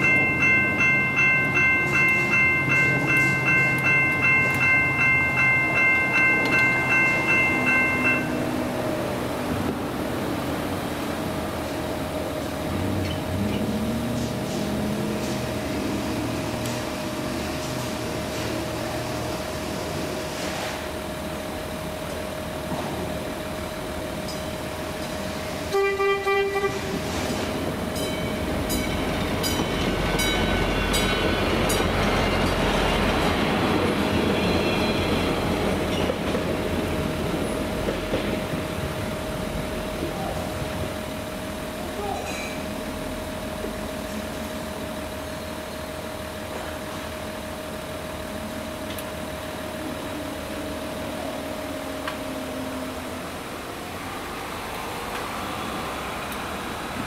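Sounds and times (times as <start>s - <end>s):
crossing warning bell ringing: 0.0s - 20.2s, 21.0s - 54.0s
train rumbling past: 0.0s - 57.0s
train horn blast: 25.7s - 27.2s.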